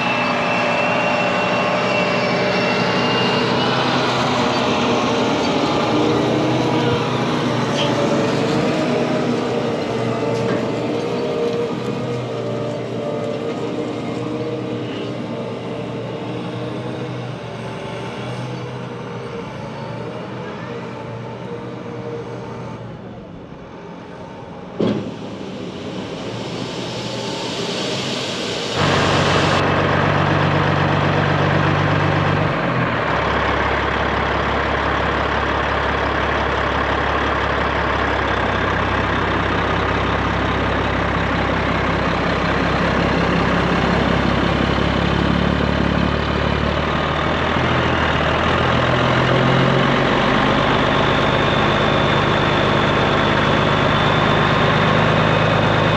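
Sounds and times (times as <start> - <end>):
heavy engine running: 0.0 - 55.9.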